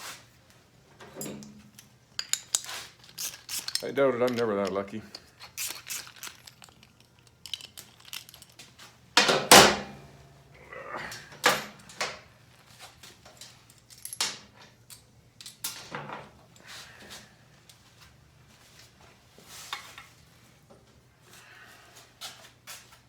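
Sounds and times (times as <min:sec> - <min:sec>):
metal parts clicking and clinking: 0:01.1 - 0:09.9, 0:11.4 - 0:12.2, 0:13.3 - 0:16.7.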